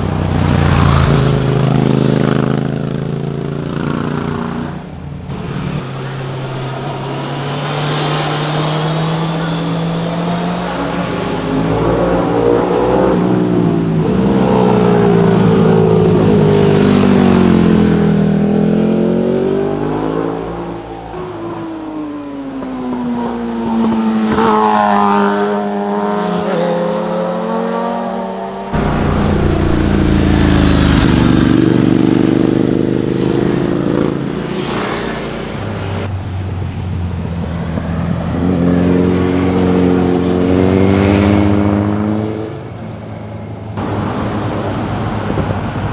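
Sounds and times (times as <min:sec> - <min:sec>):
motorcycles passing: 0:00.0 - 0:21.4, 0:22.5 - 0:45.9
deep loud engine: 0:28.7 - 0:36.3.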